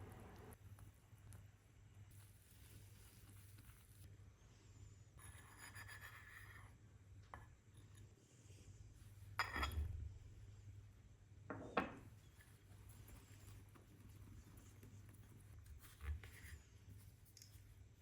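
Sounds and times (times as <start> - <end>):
soft rustle: 0.2 - 4.1, 12.1 - 18.0.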